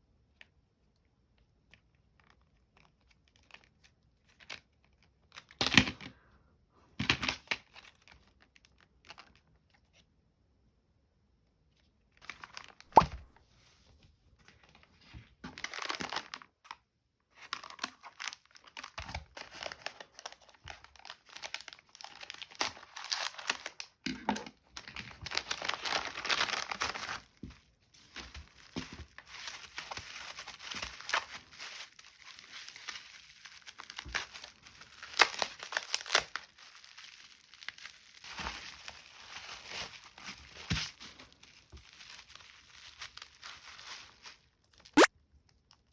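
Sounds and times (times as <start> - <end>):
packaging crinkling and tearing: 12.2 - 13.3, 15.4 - 16.8, 17.4 - 24.0, 24.8 - 45.9.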